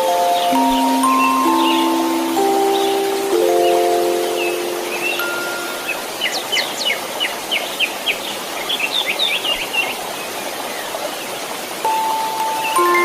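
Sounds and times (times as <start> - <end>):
held chime-like tone: 0.0 - 6.1
bird chirping: 0.0 - 10.9
white-noise hiss: 0.0 - 13.0.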